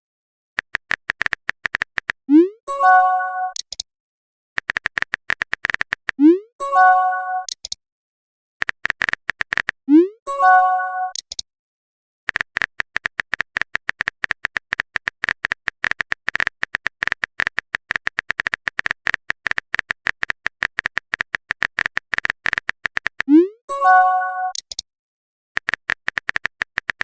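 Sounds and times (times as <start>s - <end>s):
keyboard typing clicks: 0.6s - 3.9s, 4.6s - 6.3s, 7.4s - 7.8s, 8.6s - 9.8s, 11.1s - 11.4s, 12.3s - 23.4s, 24.2s - 24.8s, 25.6s - 27.0s.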